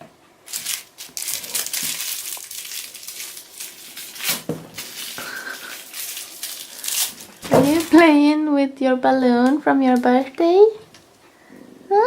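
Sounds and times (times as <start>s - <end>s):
balloon crinkling and rustling: 0.5s - 8.1s.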